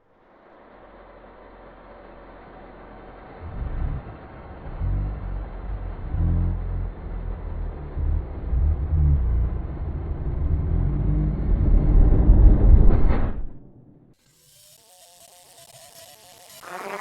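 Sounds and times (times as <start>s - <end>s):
bass-heavy rumbling effect: 3.2s - 13.8s.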